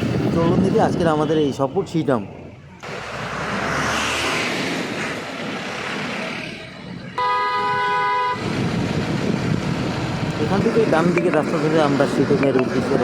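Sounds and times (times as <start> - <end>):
vehicle road noise: 0.0 - 13.0
vehicle horn blast: 7.2 - 8.4.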